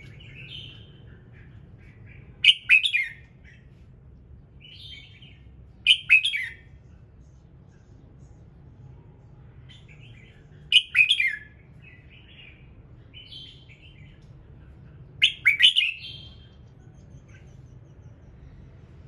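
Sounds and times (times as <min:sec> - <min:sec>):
soft bird chirps: 0:00.0 - 0:04.0, 0:04.6 - 0:08.4, 0:09.6 - 0:19.0
faint low hum: 0:00.0 - 0:19.0
bird singing whistled phrases: 0:02.4 - 0:03.3, 0:05.9 - 0:06.6, 0:10.7 - 0:11.6, 0:15.2 - 0:16.5.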